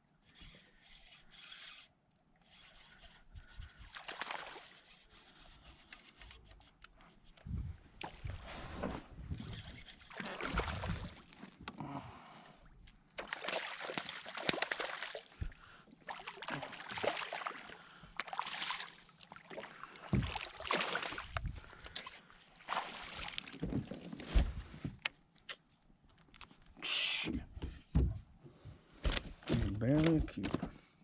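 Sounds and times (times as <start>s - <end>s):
paddle splashing in water: 9.9s - 11.6s, 13.2s - 23.9s.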